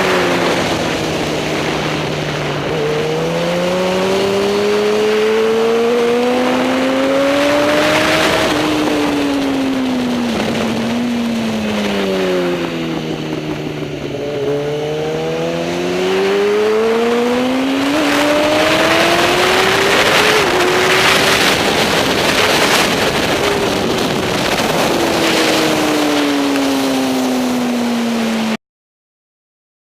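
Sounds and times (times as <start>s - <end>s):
motorcycle engine revving: 0.0s - 28.6s.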